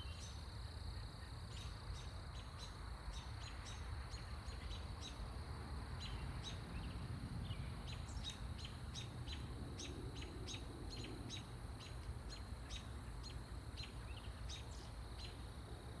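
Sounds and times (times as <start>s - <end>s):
small bird chirping: 6.0s - 15.4s.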